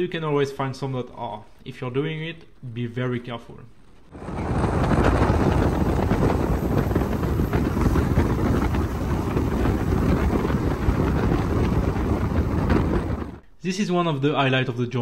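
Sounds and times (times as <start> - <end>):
wind rushing over microphone: 4.1 - 13.4
passenger train rumble: 4.2 - 13.4.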